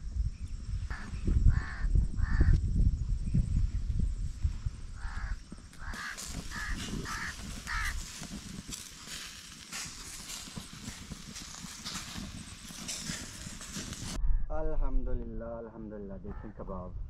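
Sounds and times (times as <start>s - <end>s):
bird calling: 5.0s - 14.2s
skewered meat sizzling over charcoal: 5.8s - 14.2s.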